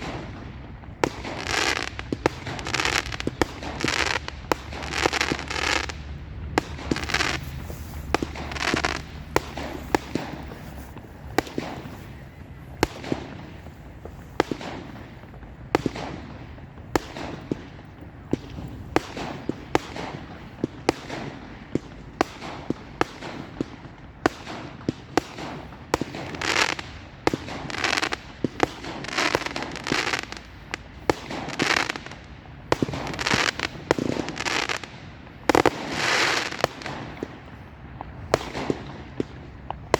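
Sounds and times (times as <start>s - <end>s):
firework hissing bursts: 0.0s - 16.2s, 25.3s - 37.4s
firework bangs: 0.0s - 39.9s.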